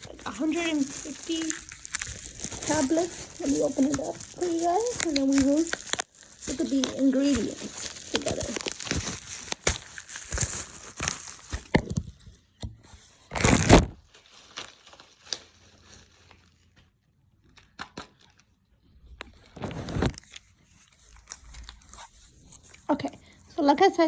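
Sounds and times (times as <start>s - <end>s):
packaging tearing rip: 0.0s - 12.0s, 13.3s - 14.1s, 19.6s - 22.0s
plastic packaging crinkling: 0.0s - 12.2s, 13.3s - 16.6s, 19.2s - 23.2s.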